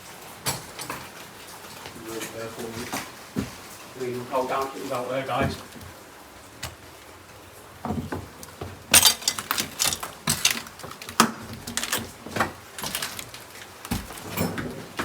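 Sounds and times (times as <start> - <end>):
sharp knocks and clatters: 7.8 - 15.0.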